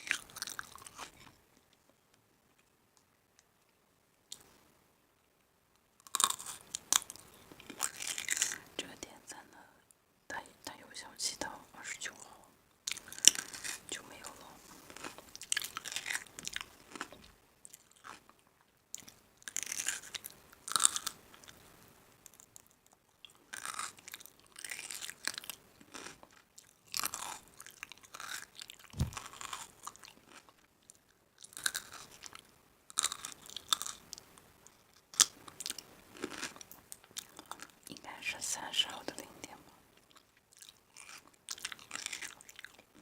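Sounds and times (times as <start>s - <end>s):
person chewing crunchy food: 0.0s - 1.4s, 6.0s - 8.7s, 12.9s - 21.6s, 22.3s - 37.9s, 40.0s - 43.0s
low thud: 29.0s - 29.3s.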